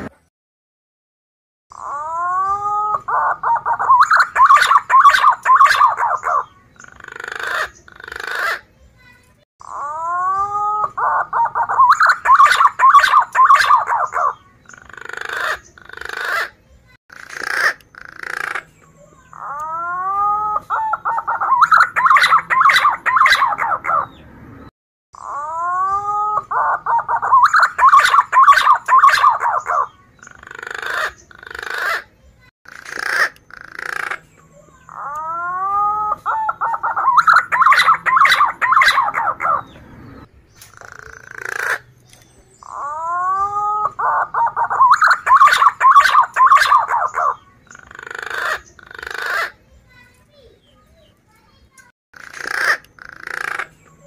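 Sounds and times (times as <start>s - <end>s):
pigeon singing whistled song: 1.7s - 8.6s, 9.6s - 16.5s, 19.3s - 24.3s, 25.2s - 32.0s, 33.5s - 49.5s.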